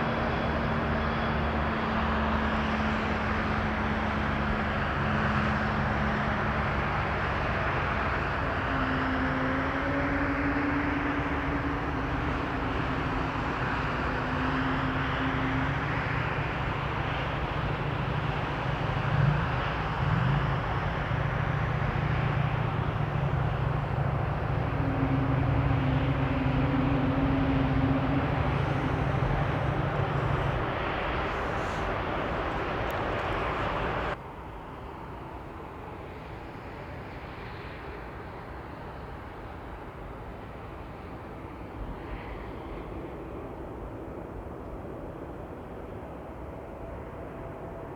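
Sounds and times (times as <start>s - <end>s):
jet engines rushing: 10.6s - 34.2s
low hum: 20.1s - 34.2s.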